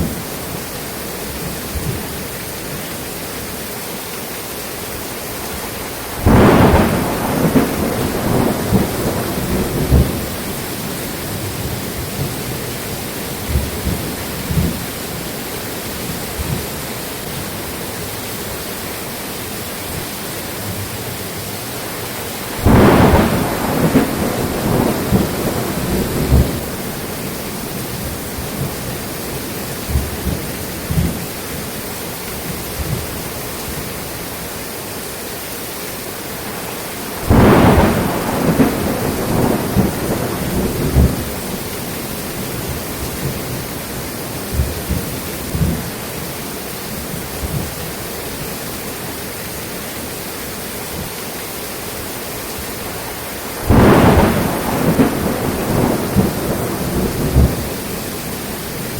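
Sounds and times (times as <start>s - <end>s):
steady rain: 0.0s - 58.9s
loud thunderclaps rumbling: 5.6s - 15.3s, 15.9s - 17.5s, 22.2s - 31.8s, 36.4s - 46.1s, 46.9s - 48.5s, 52.8s - 58.9s.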